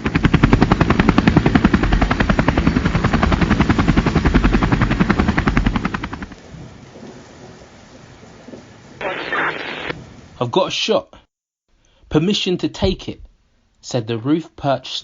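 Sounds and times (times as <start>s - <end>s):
helicopter rotor chopping: 0.0s - 6.4s.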